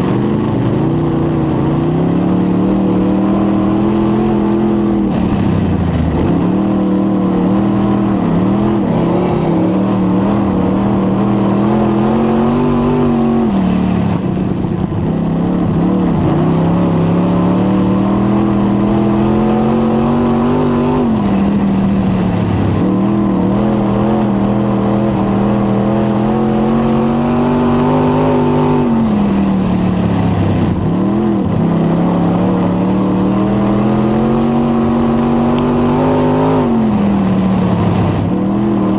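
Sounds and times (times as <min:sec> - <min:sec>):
race car engine revving: 0:00.0 - 0:38.9.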